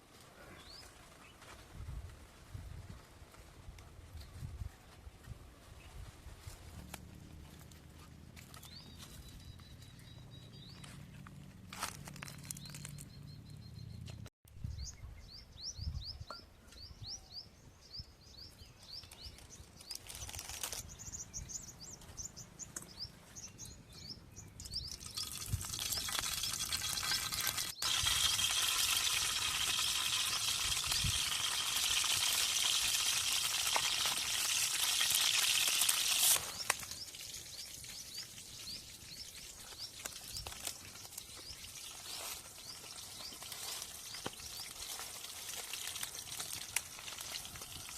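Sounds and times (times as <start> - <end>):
small birds chirping: 7.5 - 32.4, 36.3 - 47.9.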